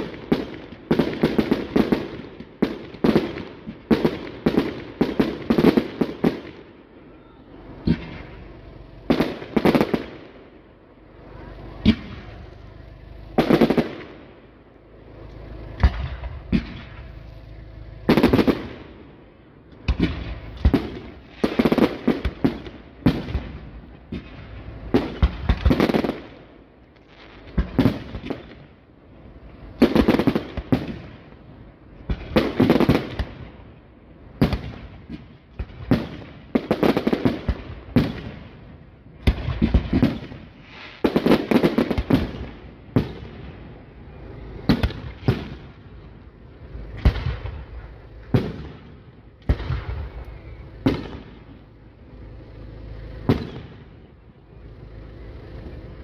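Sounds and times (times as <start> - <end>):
firework shells bursting: 53.2 - 54.1.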